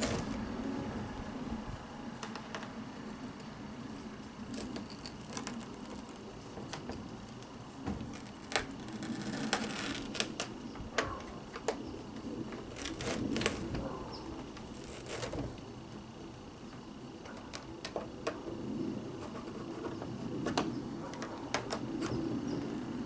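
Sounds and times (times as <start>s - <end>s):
scraping vacuum brush roll: 4.4s - 15.7s.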